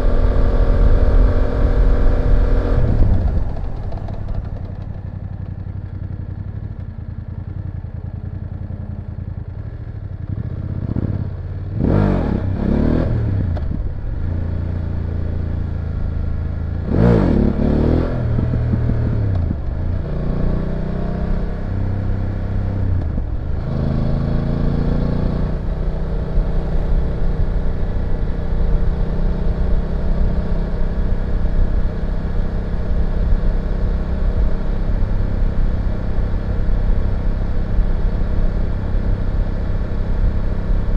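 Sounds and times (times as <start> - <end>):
motorcycle engine revving: 10.0 - 40.9.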